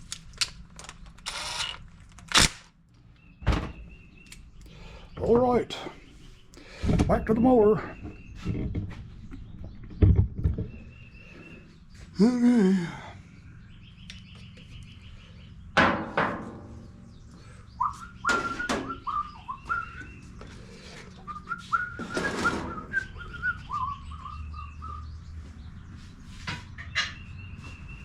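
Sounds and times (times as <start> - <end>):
metal clanks and knocks: 15.8 - 16.9
high wavering whistled notes: 17.8 - 20.3.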